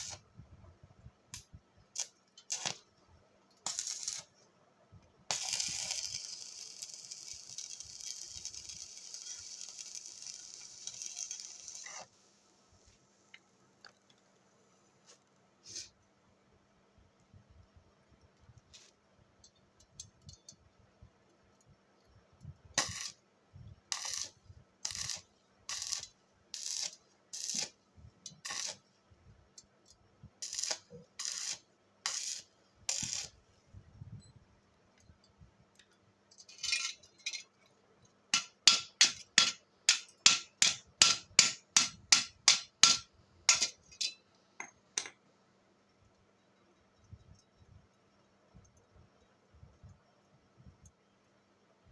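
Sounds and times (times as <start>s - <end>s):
scraping strokes on metal: 5.3s - 12.1s, 23.9s - 27.7s, 28.3s - 28.8s, 30.4s - 33.4s.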